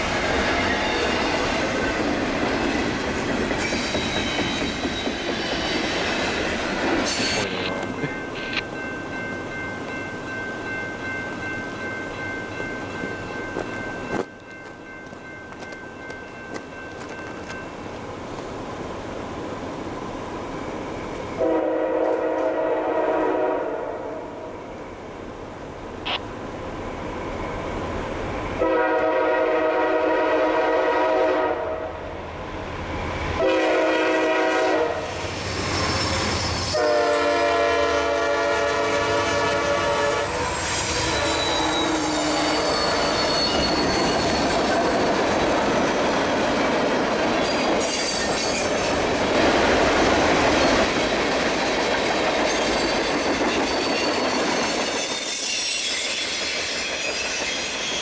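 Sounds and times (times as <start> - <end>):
train wheels clattering on rails: 0.0 - 18.5, 40.4 - 58.0
high wheel squeal: 2.5 - 7.8, 35.1 - 36.9, 40.4 - 45.2, 47.4 - 49.1, 52.5 - 58.0
locomotive air horn blasts: 21.4 - 24.2, 28.6 - 32.0, 33.4 - 35.1, 36.6 - 43.4.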